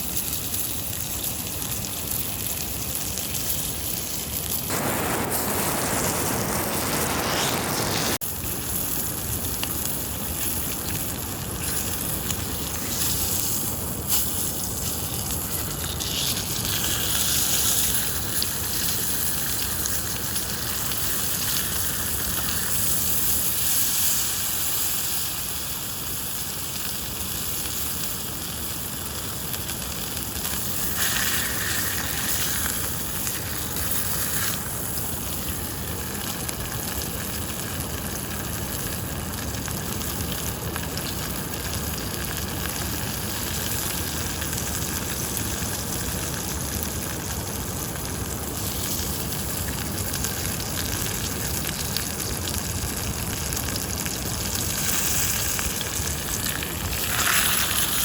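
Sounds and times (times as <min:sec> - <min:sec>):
steak sizzling in a pan: 0:04.7 - 0:08.2, 0:08.8 - 0:36.2, 0:48.5 - 0:49.6, 0:54.1 - 0:58.0.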